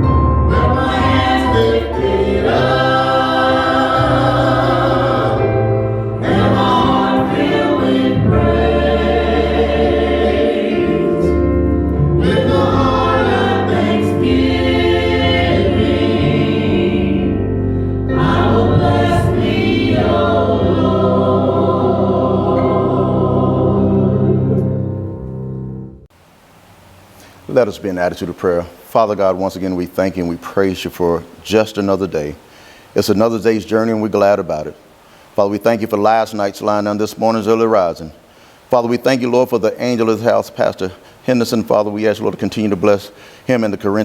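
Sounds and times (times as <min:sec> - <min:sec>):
gospel choir singing: 0:00.0 - 0:25.9
low musical accompaniment: 0:00.0 - 0:26.1.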